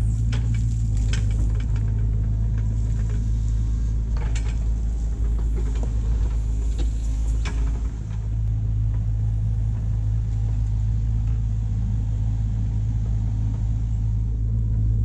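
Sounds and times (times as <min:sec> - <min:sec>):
light clicks and clanks: 0:00.0 - 0:11.7
diesel engine running: 0:00.0 - 0:15.0.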